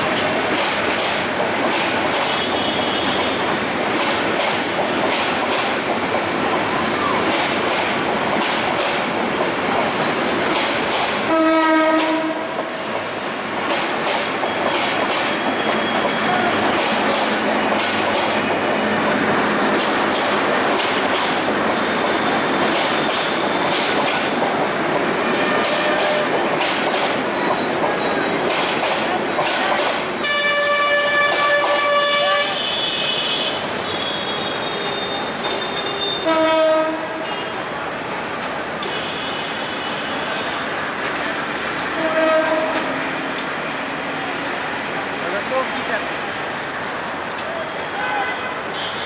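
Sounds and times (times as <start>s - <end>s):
train wheels rumbling on rail: 0.0s - 49.0s
wheels clicking over rail joints: 0.2s - 2.6s, 3.9s - 32.0s.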